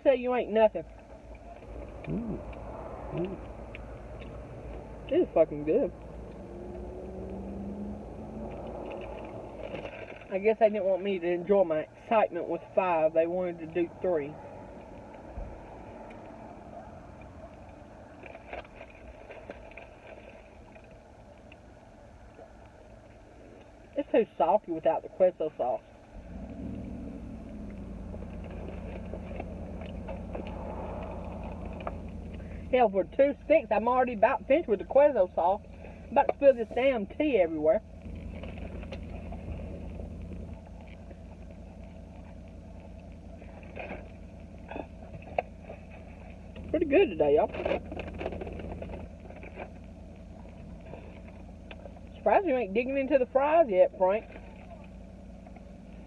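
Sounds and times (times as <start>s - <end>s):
low background hum: 0.0s - 56.0s
car engine idling: 0.5s - 19.1s, 25.9s - 56.0s
pretzel sticks being chewed: 1.6s - 5.2s, 5.9s - 10.1s, 26.4s - 32.7s
small clicks and crackles: 8.5s - 10.4s, 17.1s - 23.9s, 27.4s - 32.7s, 38.0s - 52.2s.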